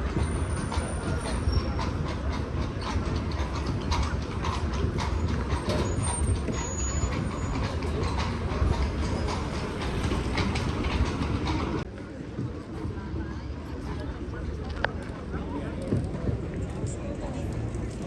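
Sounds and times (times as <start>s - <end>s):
clattering hooves: 0.0s - 13.0s
carriage wheels rumbling and rattling: 0.0s - 18.0s.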